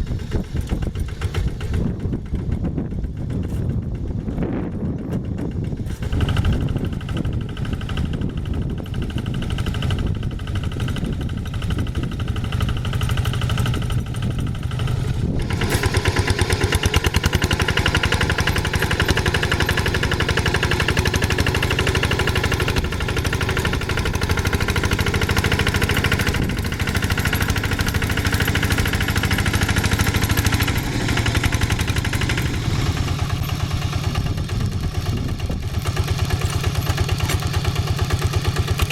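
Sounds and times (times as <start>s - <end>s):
diesel tiller engine running: 0.0s - 38.9s.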